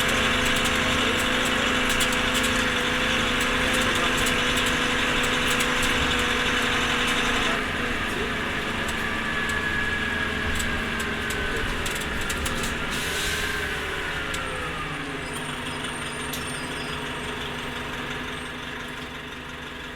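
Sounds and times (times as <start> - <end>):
bus drivetrain whine: 0.0 - 19.9.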